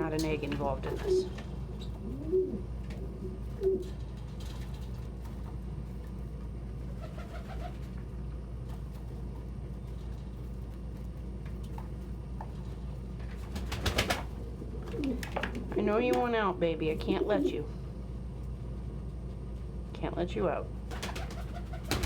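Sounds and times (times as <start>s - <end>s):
steady low hum: 0.0s - 22.0s
pigeons cooing: 0.8s - 4.0s, 6.9s - 8.0s, 13.7s - 15.7s, 20.9s - 22.0s.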